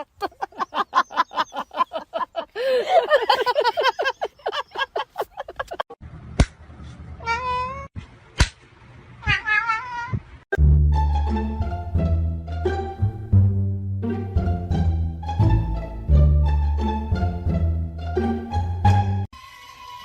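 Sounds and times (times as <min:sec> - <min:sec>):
cat meowing: 0:07.2 - 0:07.9, 0:09.2 - 0:10.2
background music: 0:10.6 - 0:19.3.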